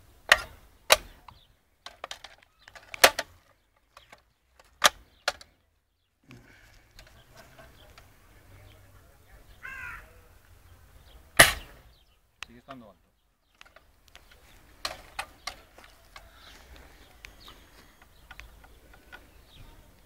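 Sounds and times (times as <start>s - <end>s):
clicks and knocks of handling parts: 0.3s - 5.6s, 13.5s - 20.0s.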